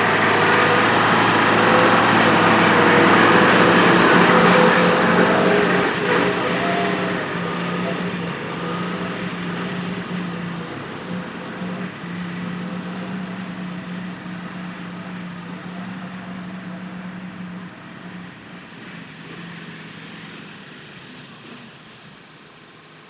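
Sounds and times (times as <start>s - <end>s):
tractor engine running: 0.0s - 18.2s.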